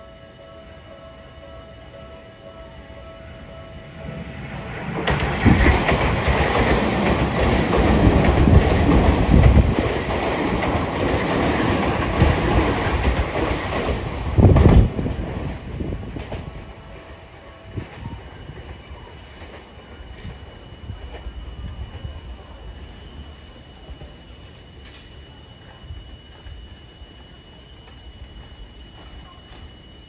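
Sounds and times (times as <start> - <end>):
train wheels clattering over rail joints: 4.8 - 15.0.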